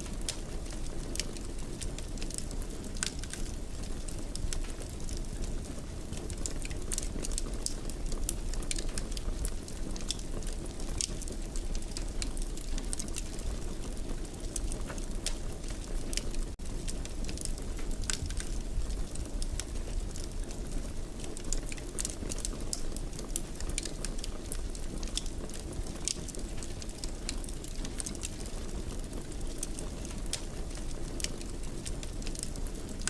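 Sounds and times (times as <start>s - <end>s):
burning wood crackling and popping: 0.0s - 33.0s.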